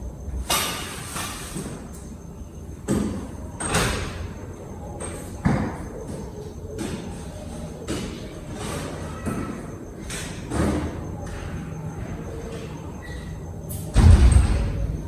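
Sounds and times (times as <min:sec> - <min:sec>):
low background rumble: 0:13.9 - 0:15.0.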